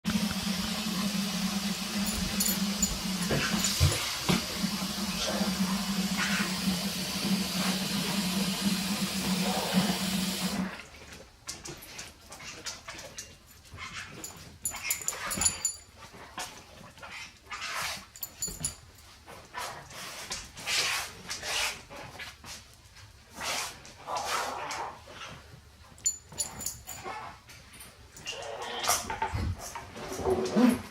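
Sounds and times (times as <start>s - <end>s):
steady hum and hiss: 0.1s - 6.3s.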